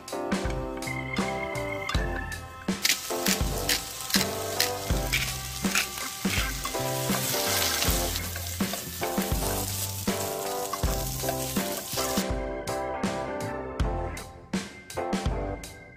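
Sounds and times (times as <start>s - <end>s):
background music with a beat: 0.0s - 15.9s
spatula turning food: 2.8s - 12.2s
vegetables sizzling in a pan: 2.8s - 12.2s.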